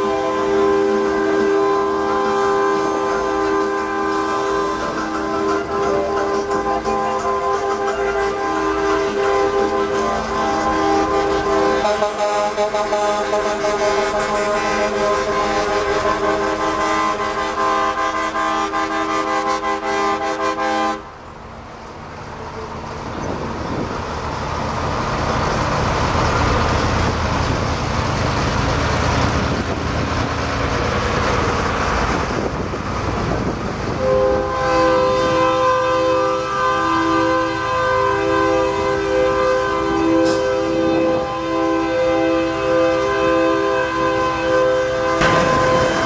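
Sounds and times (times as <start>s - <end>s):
truck air horn blaring: 0.0s - 21.1s, 33.9s - 46.0s
rushing noise with low rumble: 21.0s - 35.4s, 45.1s - 46.0s.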